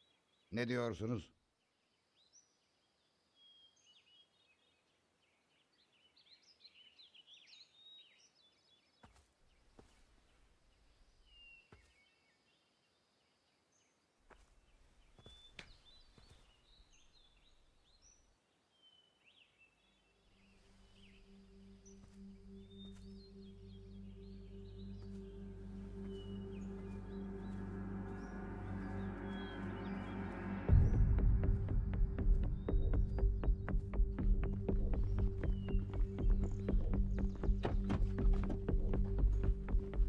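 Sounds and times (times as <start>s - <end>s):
small birds chirping: 0.0s - 40.0s
low sustained music tone: 19.2s - 40.0s
low rumble: 22.6s - 40.0s.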